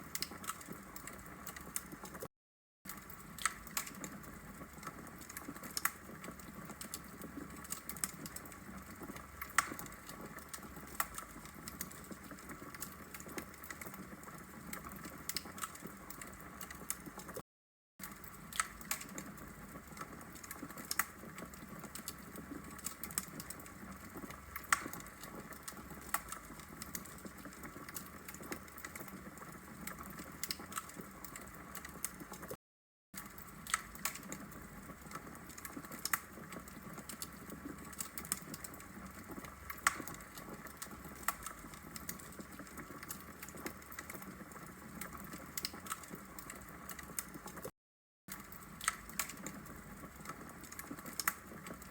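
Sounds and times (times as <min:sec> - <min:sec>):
fire crackling and popping: 0:00.0 - 0:02.3, 0:02.9 - 0:17.4, 0:18.0 - 0:32.6, 0:33.2 - 0:47.7, 0:48.3 - 0:51.9.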